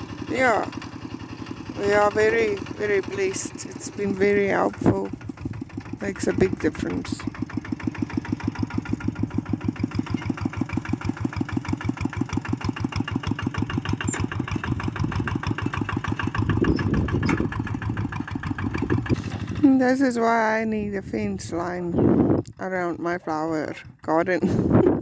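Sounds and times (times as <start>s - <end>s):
tractor engine chugging: 0.0s - 25.0s.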